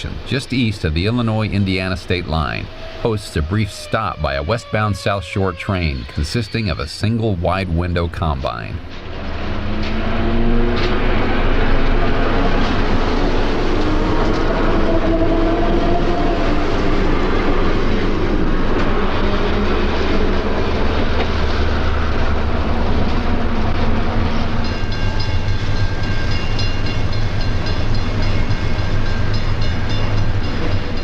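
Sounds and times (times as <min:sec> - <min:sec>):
electric train rumbling on rails: 0:00.0 - 0:31.0
train wheel clatter: 0:08.8 - 0:31.0.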